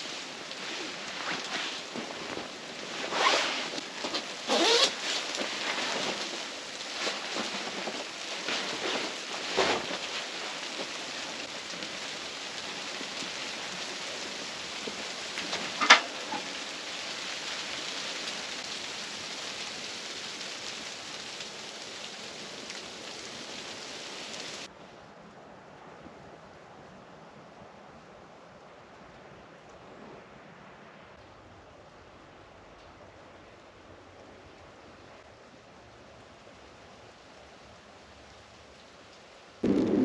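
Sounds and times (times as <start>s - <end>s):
fabric rustling: 0.0s - 16.7s
snow pattering on tent fabric: 0.0s - 24.8s, 34.3s - 40.0s.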